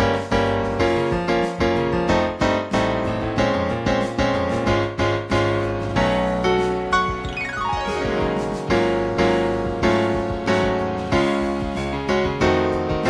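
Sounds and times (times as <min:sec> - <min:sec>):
piano chords: 0:00.0 - 0:13.0
steady bass line: 0:00.0 - 0:13.0.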